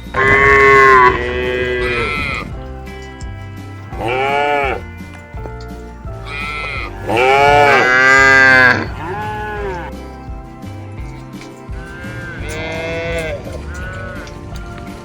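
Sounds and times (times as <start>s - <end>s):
cattle mooing: 0.0s - 10.1s, 11.7s - 15.0s.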